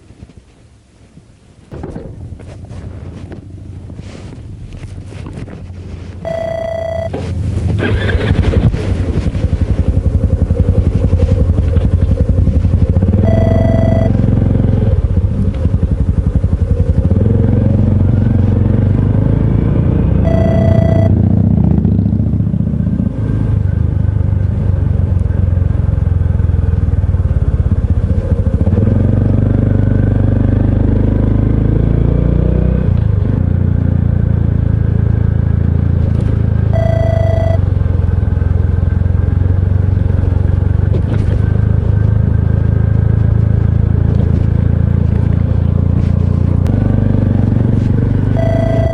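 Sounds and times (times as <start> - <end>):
short electronic beep: 6.3 - 7.1, 13.2 - 14.2, 20.3 - 21.2, 36.8 - 37.6, 48.4 - 48.9.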